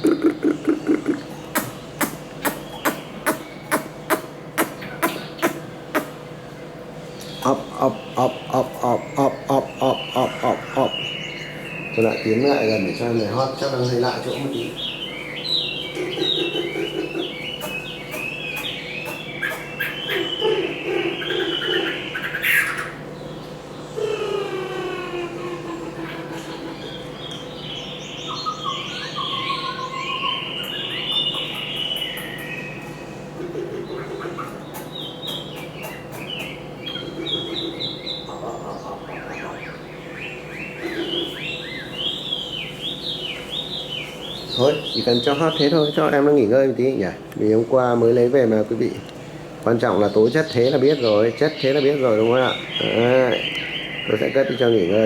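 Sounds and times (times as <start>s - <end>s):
bird singing whistled notes: 27.3s - 32.8s.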